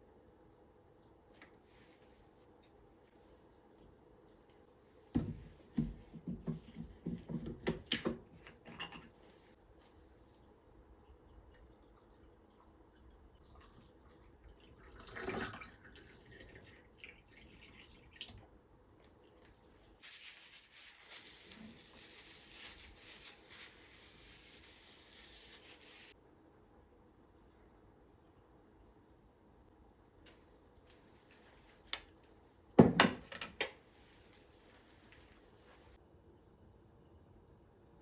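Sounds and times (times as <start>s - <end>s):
water running from a tap: 13.4s - 18.4s.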